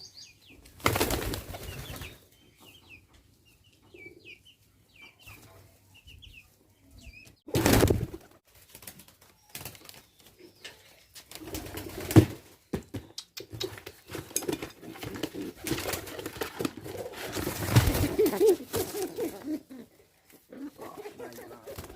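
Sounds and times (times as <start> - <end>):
wings rustling and flapping: 0.7 - 2.2, 7.5 - 12.8, 13.4 - 21.9
pigeon cooing: 14.8 - 21.9.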